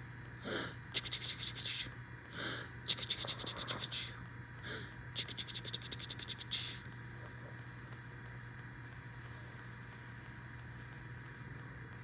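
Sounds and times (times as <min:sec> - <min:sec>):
soft breathy sounds: 0:00.4 - 0:06.8.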